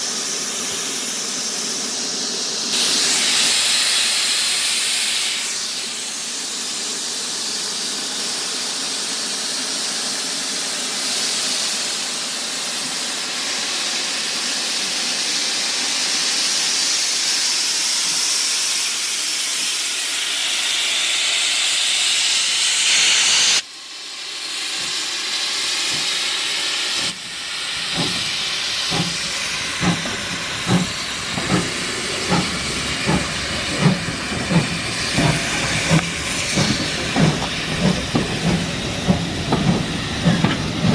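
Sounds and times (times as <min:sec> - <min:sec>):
steam hissing from locomotive: 0:00.0 - 0:40.9
locomotive exhaust chuffs: 0:25.6 - 0:40.9.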